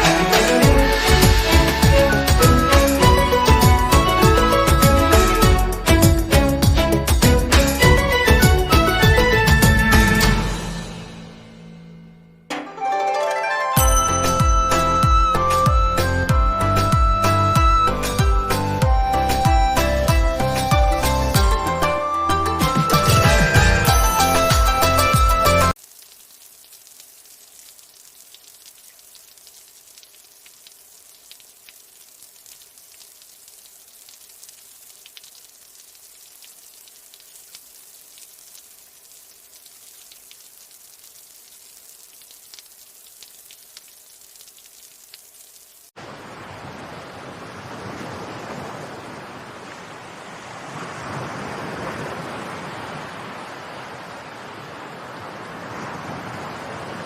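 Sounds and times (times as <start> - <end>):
loud rushing water: 0.0 - 12.0, 12.8 - 25.8, 45.9 - 57.0.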